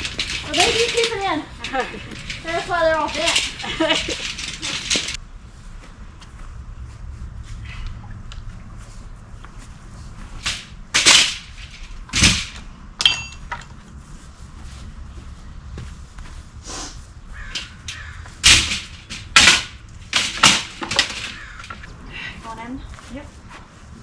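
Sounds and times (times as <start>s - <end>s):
sharp knocks: 17.5s - 21.9s.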